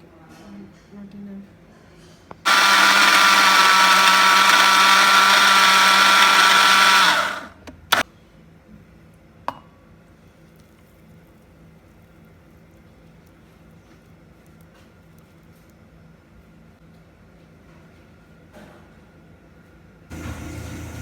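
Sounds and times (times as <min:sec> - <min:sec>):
electric blender running: 0:02.5 - 0:08.0, 0:20.1 - 0:21.0.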